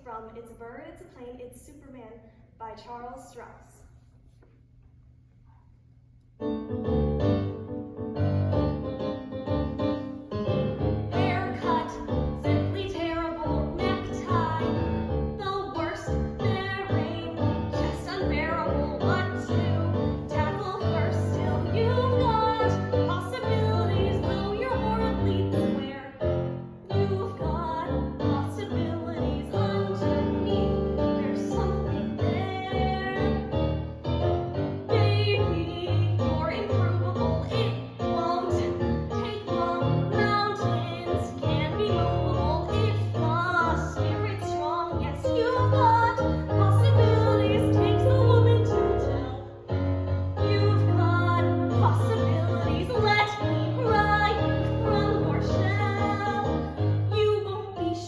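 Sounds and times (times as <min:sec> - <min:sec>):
piano accompaniment: 0:06.4 - 0:58.0.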